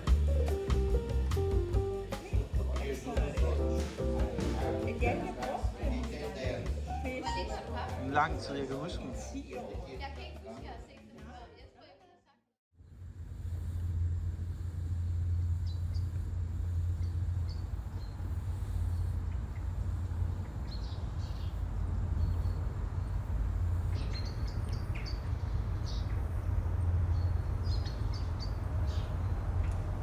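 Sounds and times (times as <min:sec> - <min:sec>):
steady low rumble: 0:00.0 - 0:08.7, 0:12.8 - 0:30.0
small birds chirping: 0:15.3 - 0:26.5, 0:27.1 - 0:29.4.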